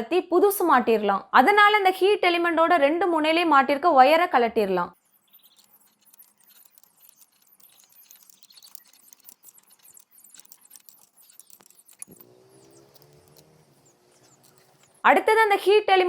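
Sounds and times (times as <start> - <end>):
hand tools clicking and tapping: 5.6 - 15.0.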